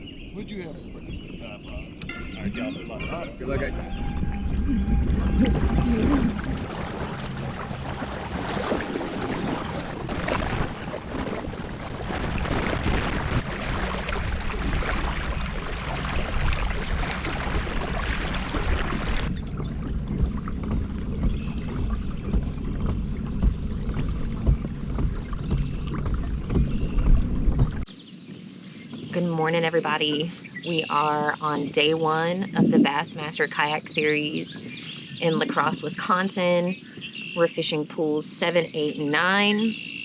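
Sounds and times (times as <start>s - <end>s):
low rumble: 0.0s - 27.9s
wind noise: 0.0s - 27.9s, 30.2s - 37.4s
water rushing past boat: 0.8s - 27.9s.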